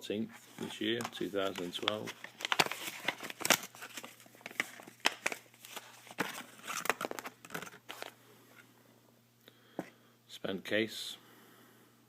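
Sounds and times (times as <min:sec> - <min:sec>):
packet crinkling and rustling: 0:00.5 - 0:08.2.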